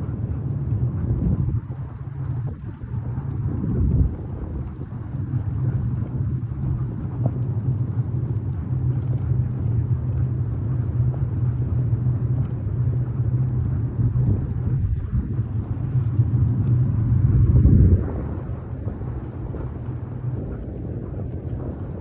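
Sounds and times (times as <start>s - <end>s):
sled rumbling over snow: 13.1s - 22.0s.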